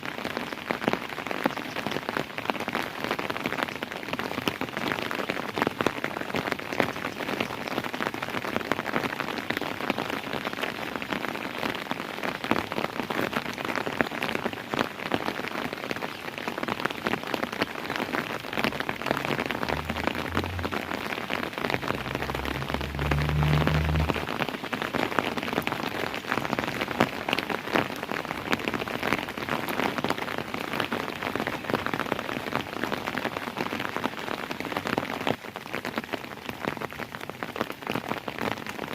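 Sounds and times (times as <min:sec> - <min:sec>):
rain pattering: 0:00.0 - 0:38.9
low rumble: 0:18.6 - 0:24.6.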